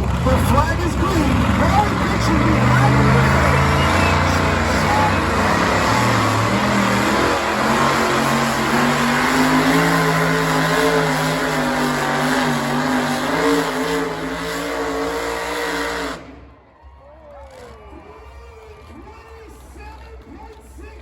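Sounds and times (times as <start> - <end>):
truck engine at full throttle: 0.0 - 16.7.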